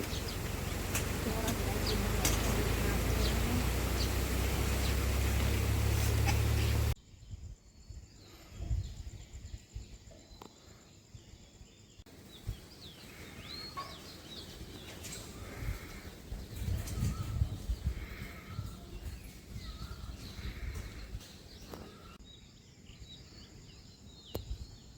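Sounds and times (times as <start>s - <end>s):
wind buffeting microphone: 0.0s - 10.0s, 12.2s - 22.2s
small birds chirping: 0.0s - 24.9s.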